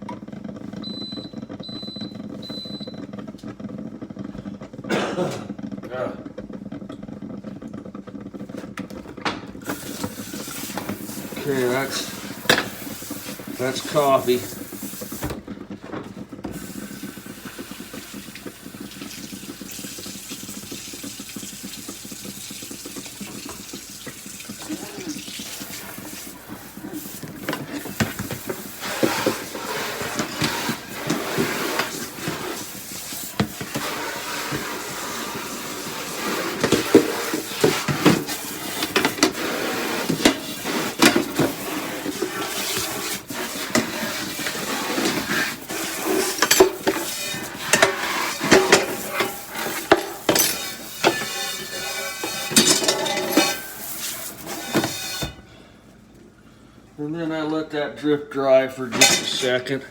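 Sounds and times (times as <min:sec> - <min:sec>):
dishes clinking in sink: 0:10.8 - 0:12.9, 0:36.5 - 0:55.5, 0:58.9 - 0:59.7.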